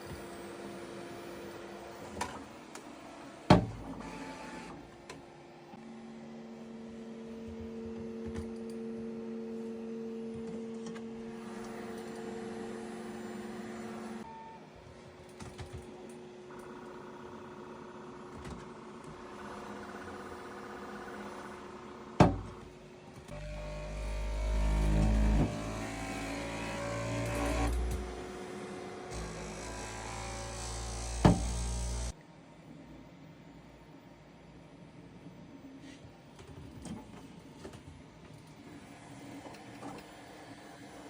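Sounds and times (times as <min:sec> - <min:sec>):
printer motors whining: 0:00.0 - 0:04.9, 0:10.2 - 0:14.3, 0:23.2 - 0:32.2.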